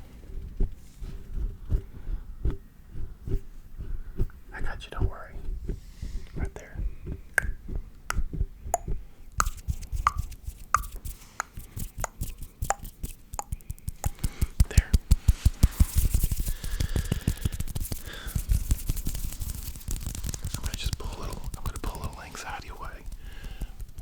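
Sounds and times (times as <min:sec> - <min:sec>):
hands rubbing: 0:00.0 - 0:24.0
fast clicks and taps: 0:06.4 - 0:24.0
mouth pops: 0:06.4 - 0:24.0.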